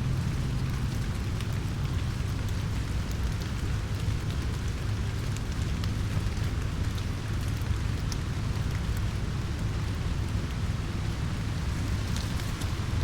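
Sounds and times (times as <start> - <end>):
steady rain falling: 0.0 - 13.0
drops ticking on leaves: 11.7 - 13.0.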